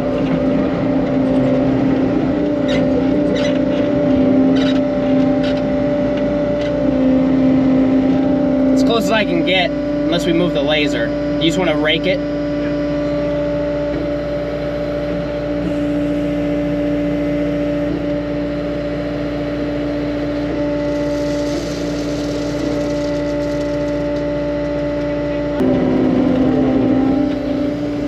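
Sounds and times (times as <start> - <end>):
construction machine engine running: 0.0 - 28.0.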